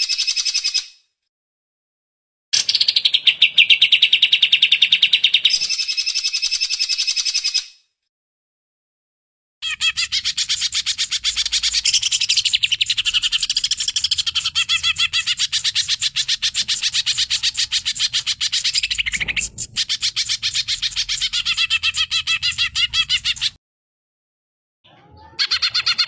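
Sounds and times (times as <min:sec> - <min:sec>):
bird chattering song: 0:09.6 - 0:23.6.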